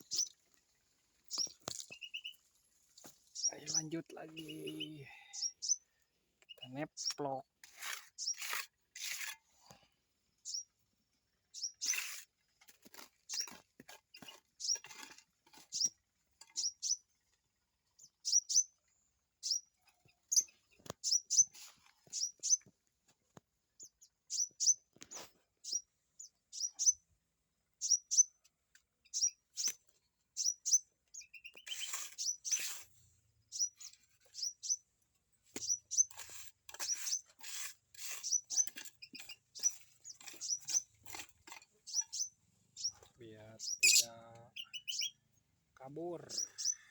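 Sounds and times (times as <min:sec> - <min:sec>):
cage birds chirping: 0:00.0 - 0:07.5, 0:08.1 - 0:08.6, 0:10.3 - 0:12.3, 0:12.9 - 0:22.7, 0:23.7 - 0:46.9
taps and scrapes of handwork: 0:07.0 - 0:09.8, 0:11.7 - 0:16.8, 0:31.5 - 0:33.0, 0:35.5 - 0:42.3.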